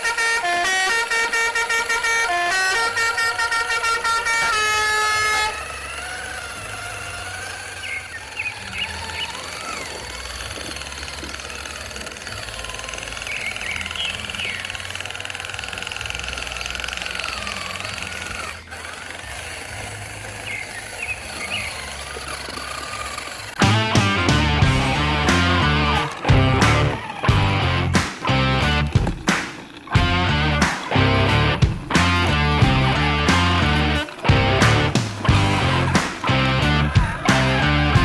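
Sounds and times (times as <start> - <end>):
truck horn: 0.0 - 8.1, 23.1 - 38.0
electric motor whine: 0.0 - 38.0
low hum: 23.5 - 38.0.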